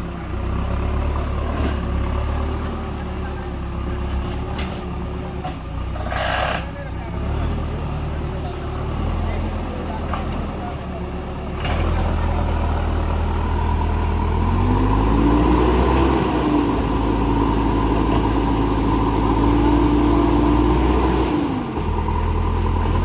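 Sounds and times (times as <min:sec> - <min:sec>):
diesel engine revving: 0:00.0 - 0:23.0.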